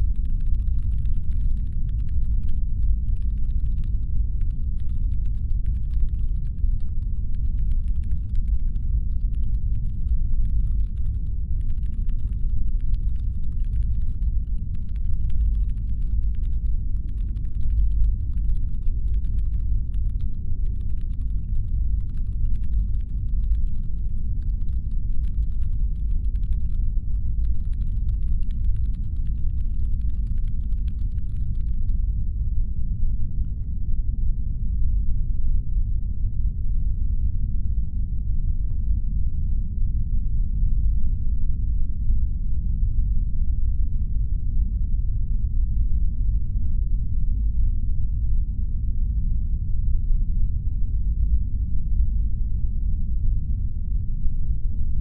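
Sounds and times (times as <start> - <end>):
faint fast clicks: 0.0 - 32.0
deep brown-noise rumble: 0.0 - 55.0.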